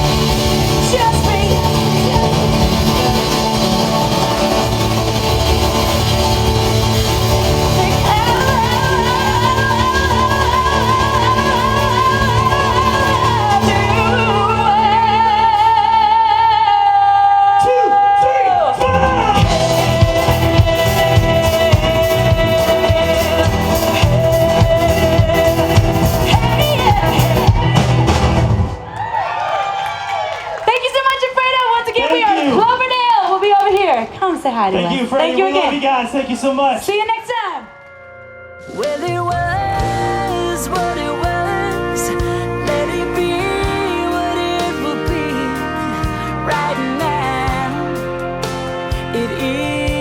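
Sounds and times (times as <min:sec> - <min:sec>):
person singing with vibrato: 0:00.0 - 0:28.4, 0:38.6 - 0:50.0
live band playing: 0:00.0 - 0:50.0.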